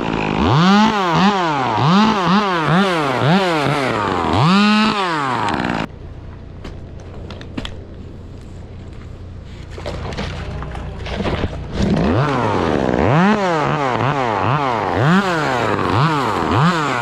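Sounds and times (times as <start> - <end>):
chainsaw revving: 0.0 - 5.9, 9.9 - 17.0.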